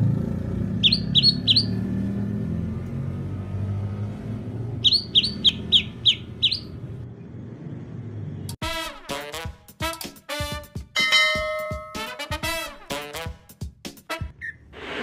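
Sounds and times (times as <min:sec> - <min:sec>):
quick bird chirps: 0:00.8 - 0:01.9, 0:04.7 - 0:06.8.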